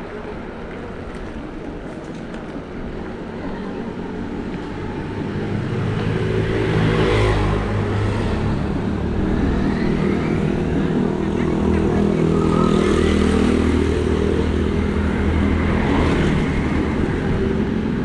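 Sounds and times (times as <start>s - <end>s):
motor vehicle passing: 4.8s - 18.0s.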